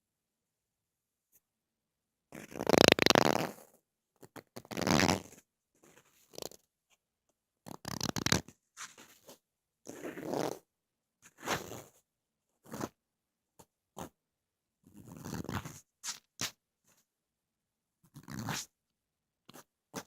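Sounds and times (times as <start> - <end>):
scratching and crackling on microphone: 2.4 - 6.6, 7.7 - 10.6.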